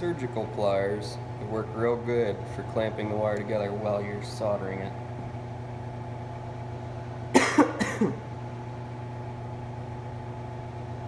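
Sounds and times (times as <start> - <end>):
steady low hum: 0.0 - 11.0
man coughing: 7.3 - 8.3.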